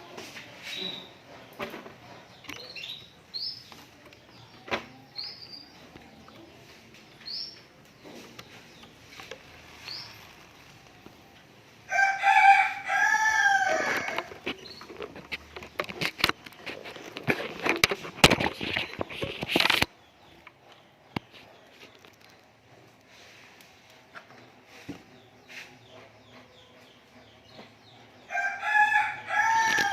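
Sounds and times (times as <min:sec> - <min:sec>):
songbird chirping: 0:00.0 - 0:29.9
sharp clicks and rustles: 0:00.1 - 0:11.7, 0:13.6 - 0:25.0
rooster crowing: 0:11.9 - 0:14.3, 0:28.3 - 0:29.9.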